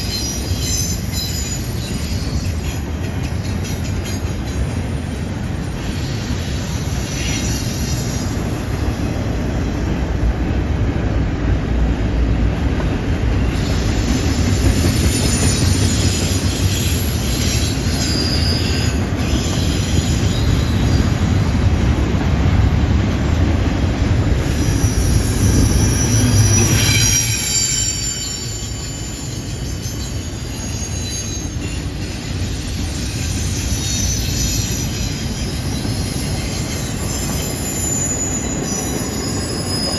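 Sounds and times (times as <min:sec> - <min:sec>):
freight train rumbling on rails: 0:00.0 - 0:39.9
high-pitched wheel squeal: 0:05.8 - 0:09.0, 0:13.5 - 0:21.2, 0:24.4 - 0:39.9.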